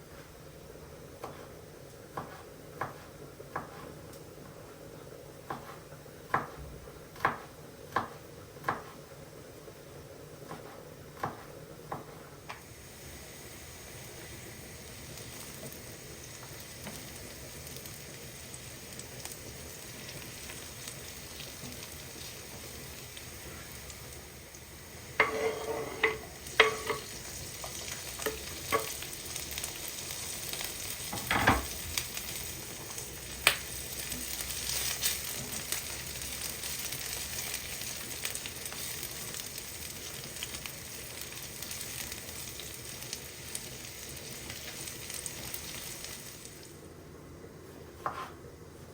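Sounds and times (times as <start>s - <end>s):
food sizzling in a pan: 10.5s - 47.0s
utensil knocking on pan: 25.2s - 27.1s.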